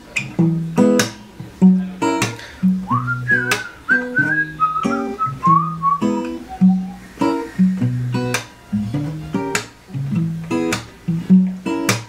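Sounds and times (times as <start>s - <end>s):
acoustic guitar strumming chords: 0.0s - 12.0s
high wavering melody: 4.8s - 9.3s.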